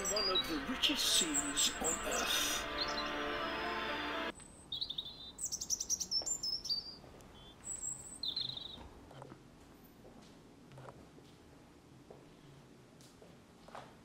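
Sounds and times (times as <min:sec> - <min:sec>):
small birds chirping: 0:00.0 - 0:03.3, 0:04.4 - 0:08.9.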